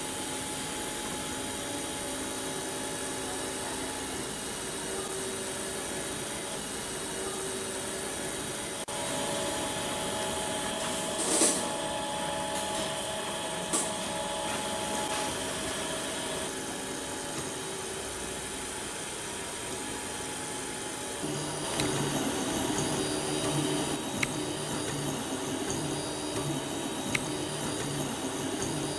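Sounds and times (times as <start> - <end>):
stepper motors whining: 21.2 - 28.9
printer clicks: 21.6 - 28.8.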